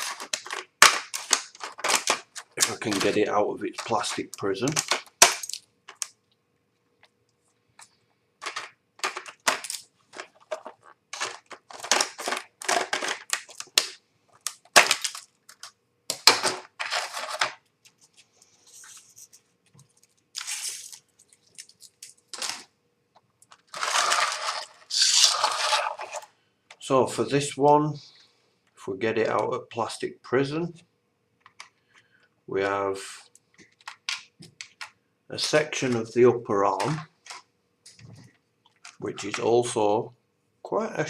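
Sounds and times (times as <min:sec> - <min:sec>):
plastic packaging crackling and tearing: 0:00.0 - 0:06.2, 0:08.4 - 0:22.7, 0:23.4 - 0:26.3.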